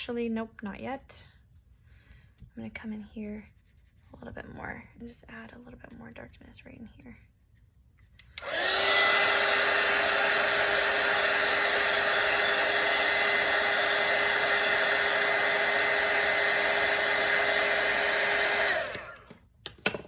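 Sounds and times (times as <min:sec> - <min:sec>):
electric dryer blowing air: 0:08.4 - 0:19.4.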